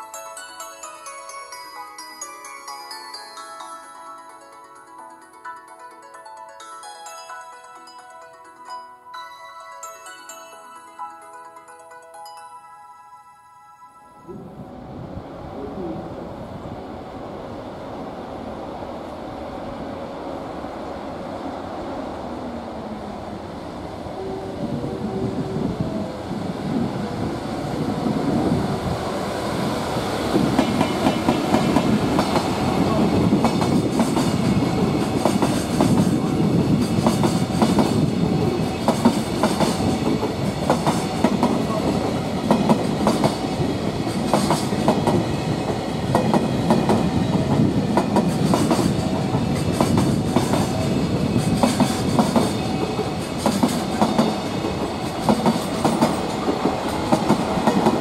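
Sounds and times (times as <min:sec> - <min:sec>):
train rumble: 0:14.3 - 0:58.0
wheels clacking over rail joints: 0:30.3 - 0:58.0.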